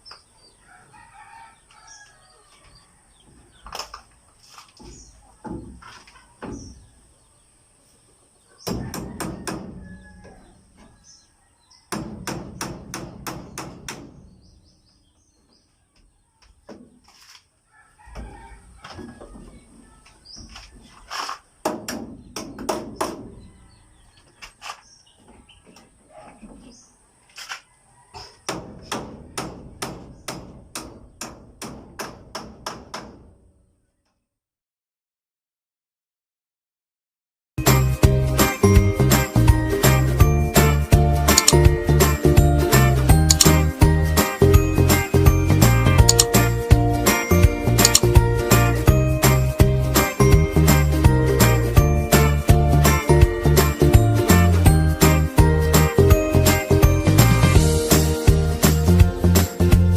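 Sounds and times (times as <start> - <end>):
chickens calling: 0.0 - 12.0, 17.6 - 30.3
hammer driving nails: 11.9 - 14.2, 41.3 - 41.6, 43.3 - 43.6.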